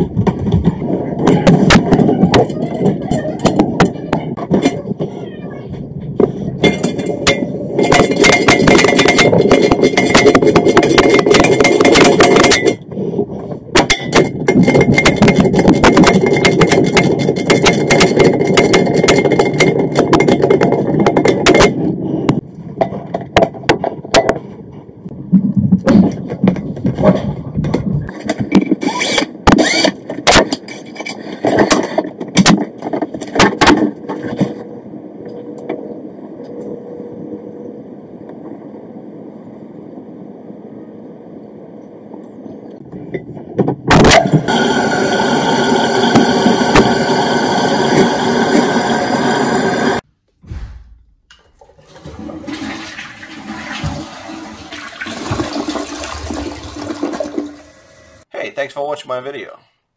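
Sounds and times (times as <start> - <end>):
toilet water rushing and draining: 44.2 - 50.0, 51.6 - 58.3.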